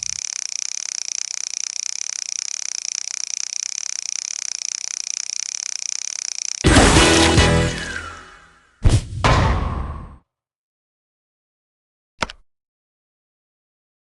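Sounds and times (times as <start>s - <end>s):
music: 6.7s - 8.4s.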